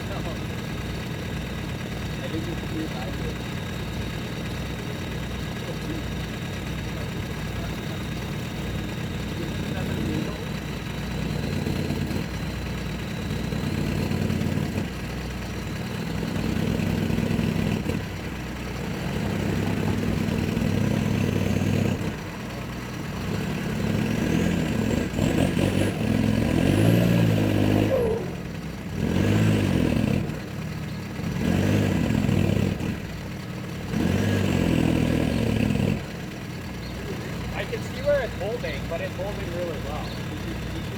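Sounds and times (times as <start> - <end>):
small truck engine revving: 0.0 - 40.9.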